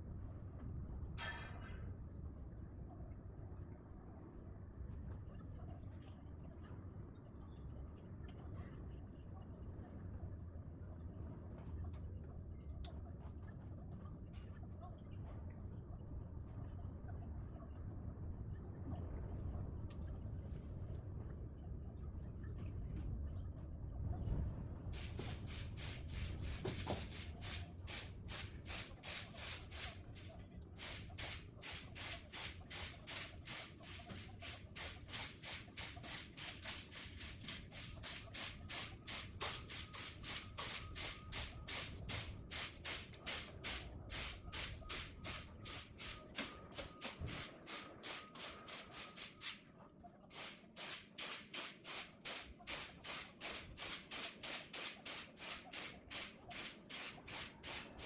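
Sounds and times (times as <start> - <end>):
rhythmic scraping strokes: 25.0 - 49.6, 50.3 - 58.0.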